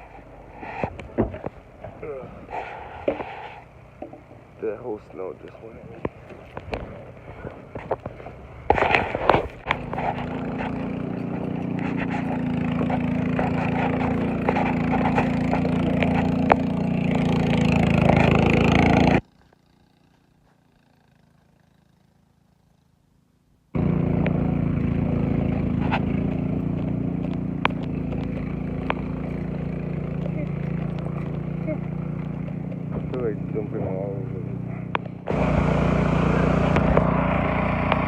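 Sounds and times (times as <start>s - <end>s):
sharp ticks and scrapes: 0.0s - 23.0s, 23.8s - 38.0s
engine running with low hum: 0.0s - 38.0s.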